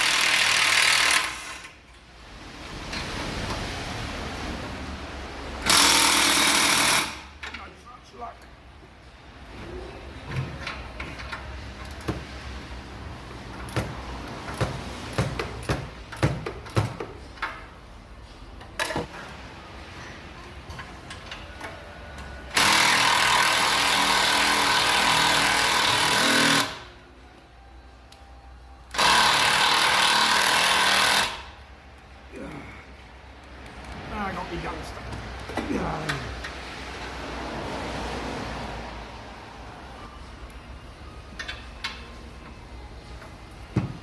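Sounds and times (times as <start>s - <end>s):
impact wrench whirring: 0.0s - 1.8s, 5.6s - 7.3s, 22.5s - 26.9s, 28.9s - 31.5s.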